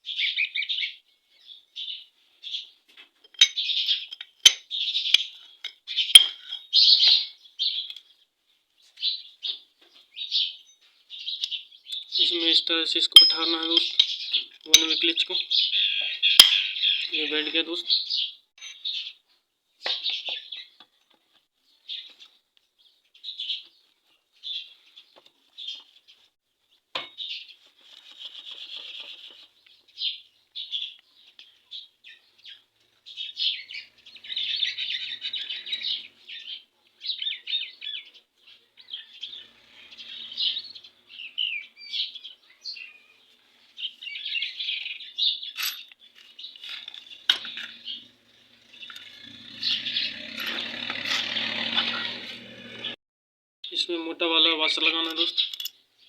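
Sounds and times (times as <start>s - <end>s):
small birds chirping: 0.0s - 53.0s, 53.7s - 56.0s
sharp metal clicks: 45.6s - 52.8s.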